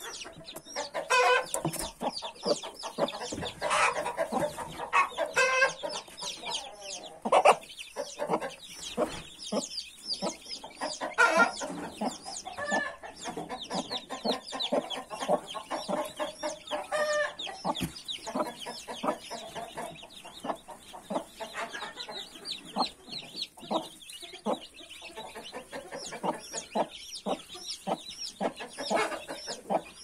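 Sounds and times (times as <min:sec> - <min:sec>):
chicks peeping: 0:00.0 - 0:30.0
hen clucking: 0:00.0 - 0:30.0.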